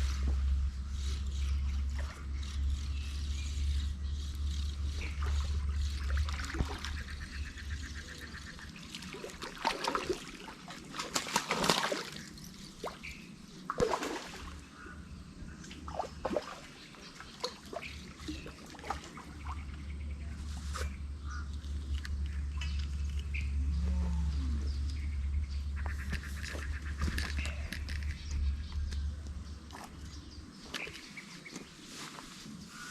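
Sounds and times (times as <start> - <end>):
water splashing and trickling: 4.7 - 14.8, 15.6 - 21.0.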